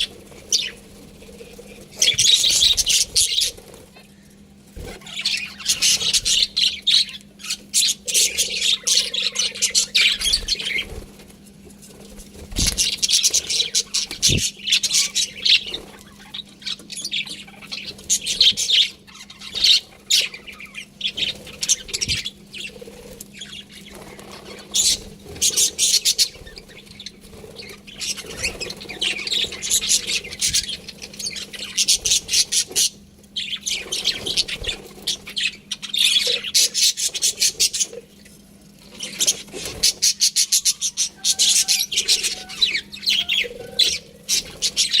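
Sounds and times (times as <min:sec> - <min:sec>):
budgerigars chirping and chattering: 0:00.0 - 0:11.2, 0:12.2 - 0:38.2, 0:38.8 - 0:45.0
faint steady hum: 0:00.0 - 0:45.0.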